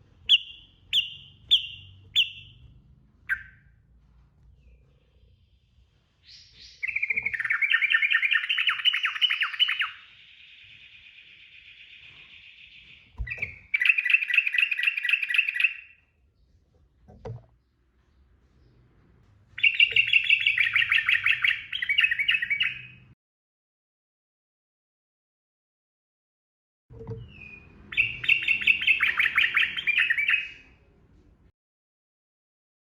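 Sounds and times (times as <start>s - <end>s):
bird chirping: 0.0s - 16.8s, 17.6s - 23.2s, 27.1s - 30.9s
bird chattering trill: 0.3s - 2.6s, 3.3s - 3.6s, 6.4s - 12.8s, 13.5s - 15.9s, 19.6s - 23.0s, 27.9s - 30.6s
soft steady bird note: 17.6s - 23.2s, 27.1s - 30.7s.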